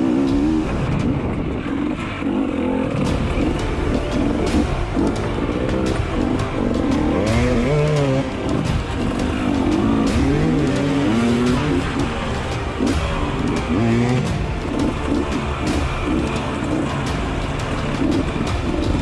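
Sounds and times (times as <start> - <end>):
dirt bike engine revving: 0.0 - 19.0
knocks and clatters: 3.0 - 19.0.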